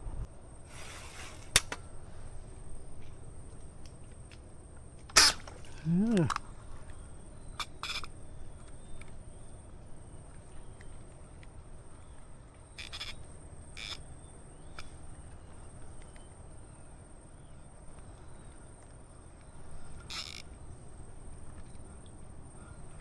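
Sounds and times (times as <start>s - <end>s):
short hissing bursts: 0.6s - 1.5s
high-pitched insect whine: 5.0s - 9.6s, 12.0s - 23.0s.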